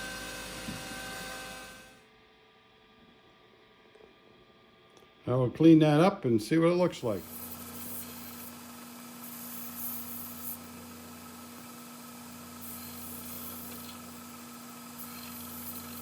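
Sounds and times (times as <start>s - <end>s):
steady machine hum: 0.0s - 16.0s
rasping file strokes on metal: 11.6s - 16.0s.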